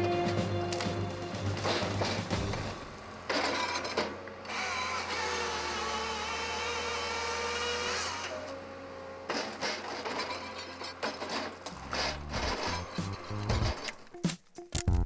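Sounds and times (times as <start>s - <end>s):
power tool motor running: 1.5s - 8.6s, 9.4s - 13.8s.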